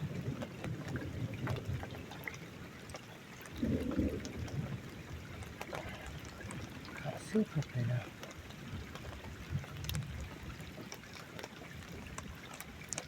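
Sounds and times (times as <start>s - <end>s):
rainwater trickling and dripping: 0.0s - 13.0s.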